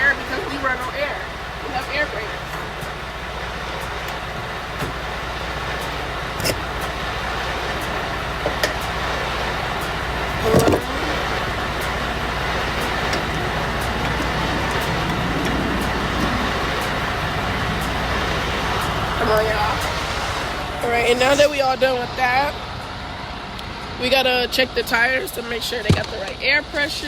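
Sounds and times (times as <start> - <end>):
semi-truck engine running: 0.0 - 27.0
sharp metallic clicks: 1.6 - 20.6.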